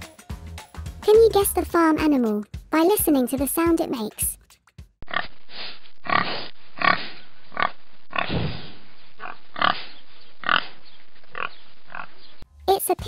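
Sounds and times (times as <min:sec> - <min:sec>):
pig grunting: 0:05.0 - 0:12.2.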